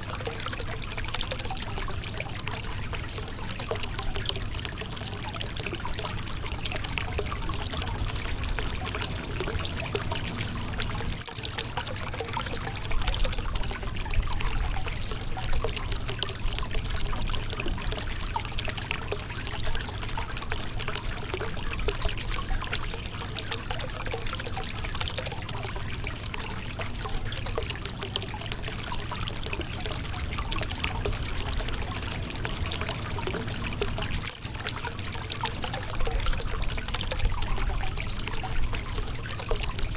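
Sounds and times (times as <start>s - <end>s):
river water babbling over rocks: 6.2s - 11.2s, 29.1s - 34.3s.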